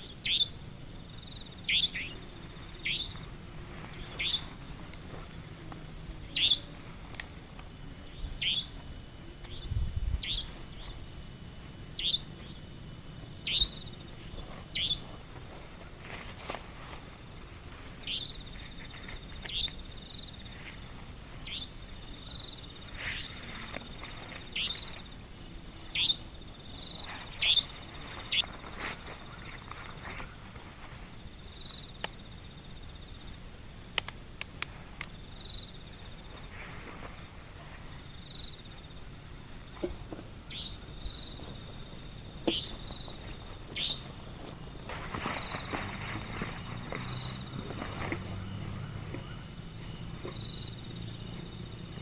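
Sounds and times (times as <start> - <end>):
insects trilling: 0.0 - 52.0
sharp ticks: 33.9 - 35.2.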